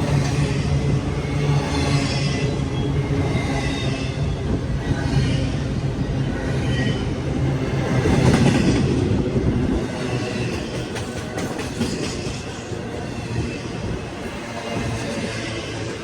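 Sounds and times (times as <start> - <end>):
freight train wheels clattering: 7.8 - 15.8.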